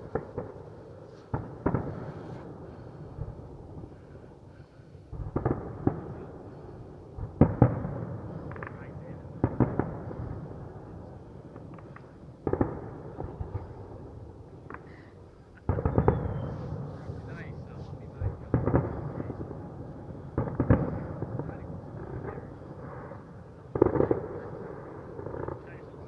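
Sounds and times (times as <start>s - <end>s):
fireworks crackling: 0.0s - 2.9s
fireworks bangs: 0.0s - 4.0s, 5.1s - 15.0s, 15.6s - 26.0s.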